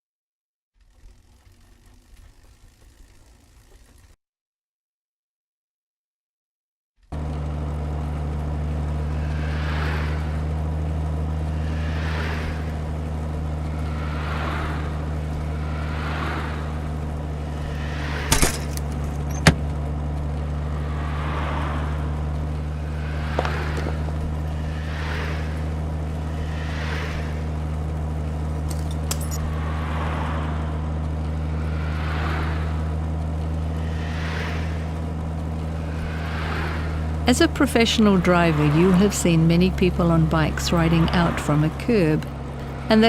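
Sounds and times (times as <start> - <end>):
heavy truck engine droning: 0.8 - 4.2, 7.0 - 43.0
whoosh: 20.8 - 27.6.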